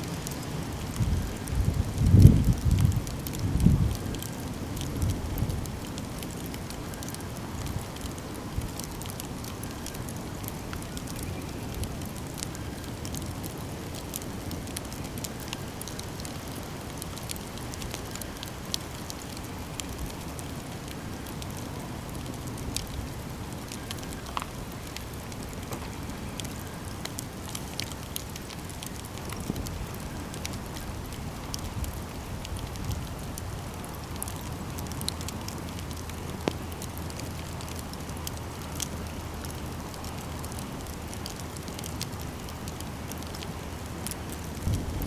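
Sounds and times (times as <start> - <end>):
burning wood crackling and popping: 0.0 - 45.0
campfire flames rushing: 0.0 - 45.0.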